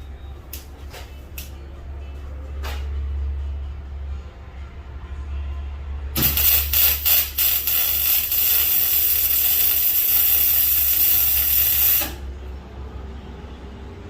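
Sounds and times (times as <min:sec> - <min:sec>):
welder crackling hiss: 0:06.2 - 0:12.2.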